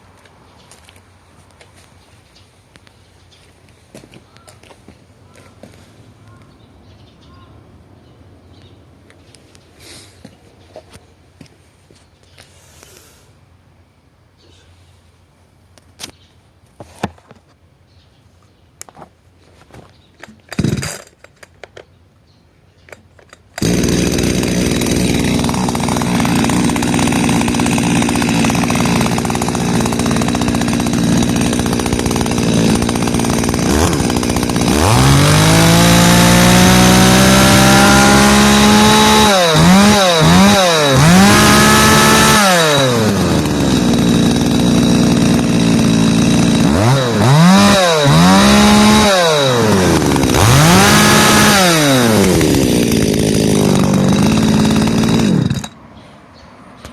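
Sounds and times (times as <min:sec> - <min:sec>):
chainsaw engine revving and idling: 0:20.5 - 0:21.0, 0:23.6 - 0:55.8.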